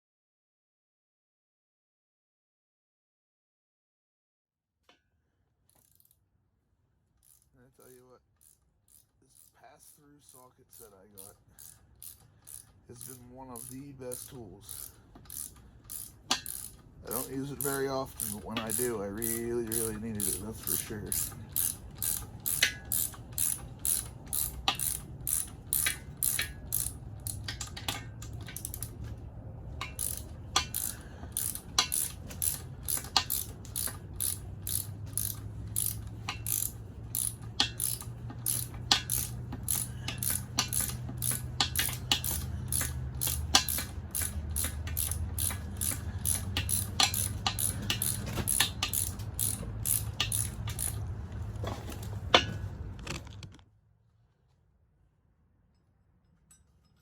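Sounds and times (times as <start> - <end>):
socket ratchet clicking: 8.4 - 29.1, 29.8 - 51.2.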